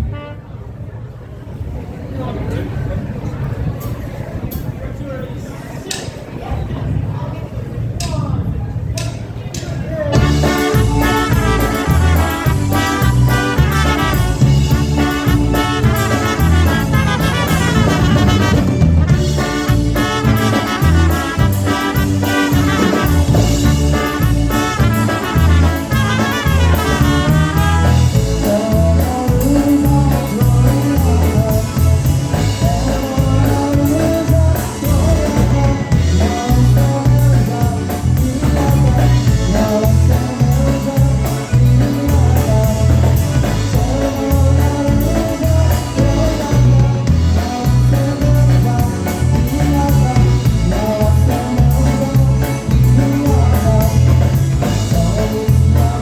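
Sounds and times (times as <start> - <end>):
brass playing: 0.0 - 0.6, 10.2 - 36.8
oom-pah bass: 9.0 - 56.0
drum kit beat: 10.2 - 56.0
person singing: 10.2 - 56.0.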